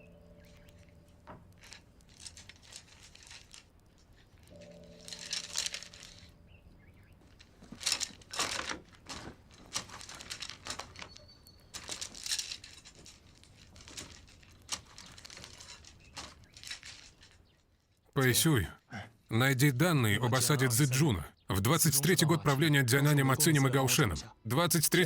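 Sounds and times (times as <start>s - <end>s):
rustling and brushing: 7.3s - 17.9s.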